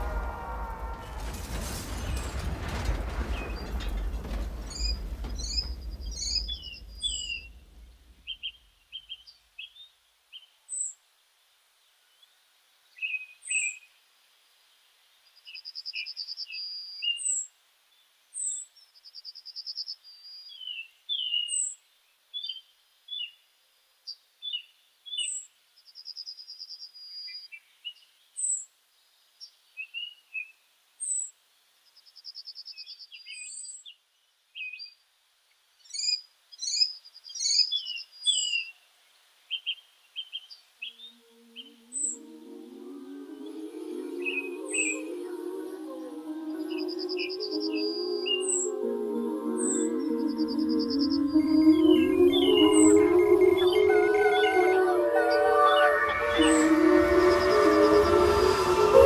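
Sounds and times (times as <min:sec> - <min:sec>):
low rumble: 0:00.0 - 0:08.7, 0:41.3 - 0:59.0
high thin bird note: 0:49.6 - 0:59.0.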